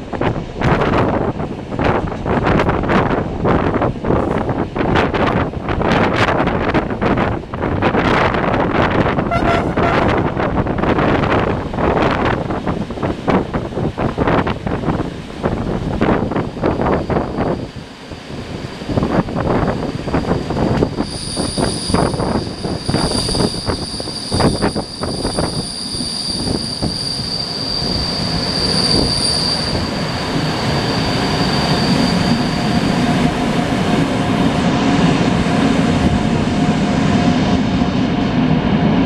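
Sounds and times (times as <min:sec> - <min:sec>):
train rumble: 0:00.0 - 0:39.0
train wheels squealing: 0:16.3 - 0:18.8, 0:19.6 - 0:33.4.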